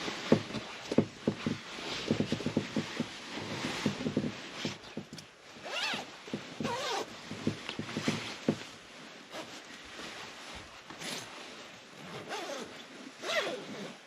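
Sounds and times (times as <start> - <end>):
short knocks and rustles: 0.0 - 11.4
zipper being pulled: 0.4 - 8.6, 9.3 - 9.6, 10.9 - 11.3, 12.0 - 14.0.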